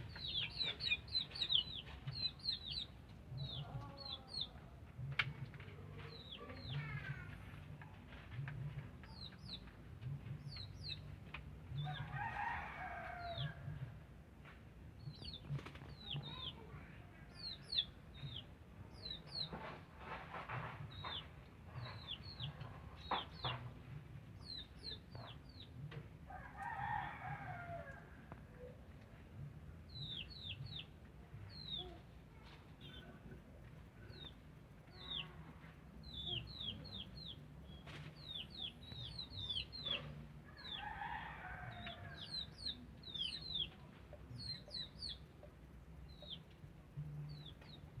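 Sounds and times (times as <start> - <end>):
small birds chirping: 0.0 - 4.7, 15.0 - 19.7, 29.8 - 41.1, 41.7 - 48.0
rooster crowing: 40.6 - 42.4.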